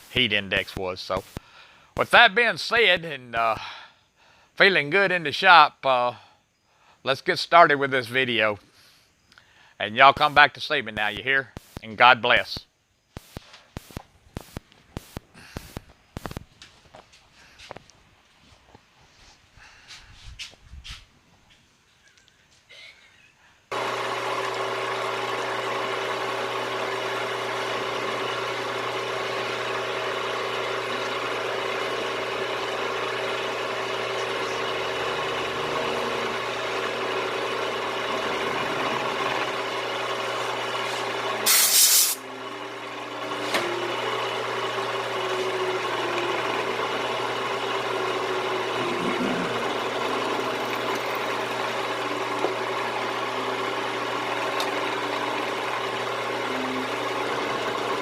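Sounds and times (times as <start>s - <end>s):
electric machine motor hum: 23.7s - 58.0s
loud burst of hiss: 40.9s - 42.2s.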